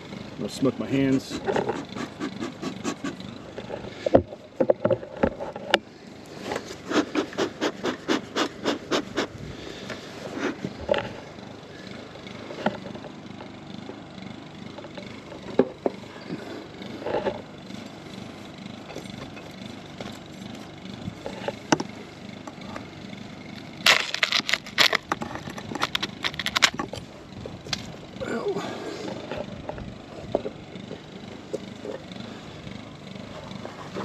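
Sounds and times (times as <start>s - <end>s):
sharp clicks and cracks: 23.8s - 27.0s
metal tool scraping wax: 23.9s - 27.0s.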